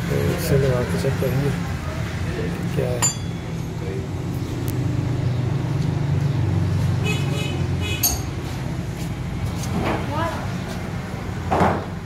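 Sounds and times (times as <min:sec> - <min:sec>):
vehicle engine rumbling: 0:00.0 - 0:12.0
sharp metallic clink: 0:03.0 - 0:03.6, 0:08.0 - 0:08.4.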